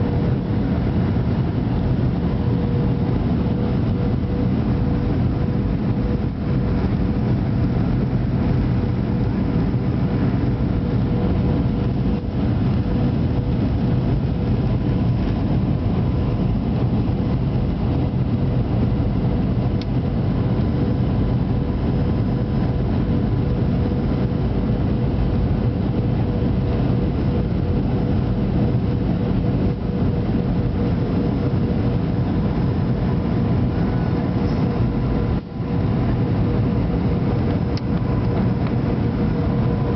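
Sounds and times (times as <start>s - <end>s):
airliner cabin noise: 0.0s - 39.9s.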